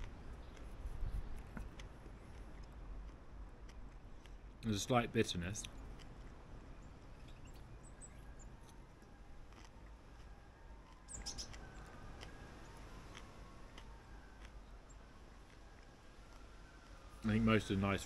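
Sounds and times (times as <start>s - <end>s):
chewing mouth clicks: 0.4s - 4.5s, 9.5s - 12.4s, 13.1s - 14.6s
soft bird chirps: 6.6s - 8.8s, 10.9s - 13.3s.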